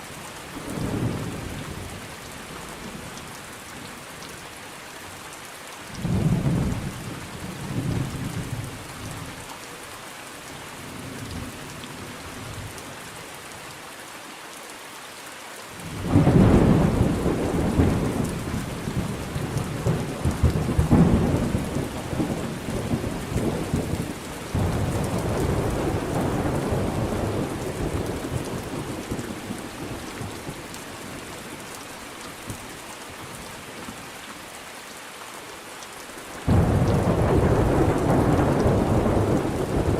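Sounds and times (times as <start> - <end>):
steady rain: 0.0 - 39.9
thunder rumbling: 16.0 - 30.6, 36.5 - 39.9.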